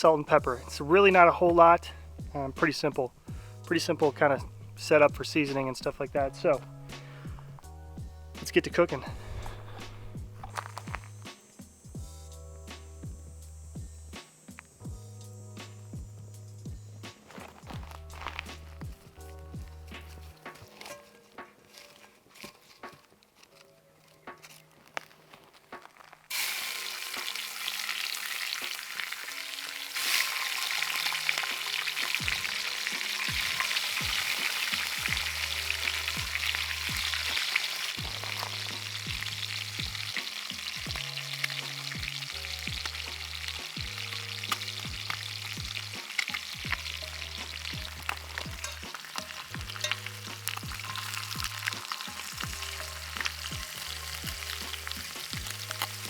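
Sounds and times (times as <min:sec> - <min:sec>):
fish frying in hot oil: 0:26.2 - 0:56.0.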